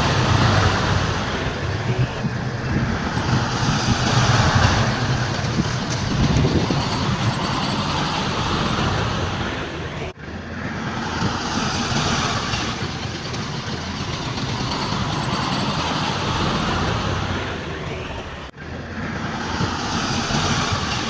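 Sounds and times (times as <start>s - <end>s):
heavy diesel machinery engine: 0.0s - 21.0s.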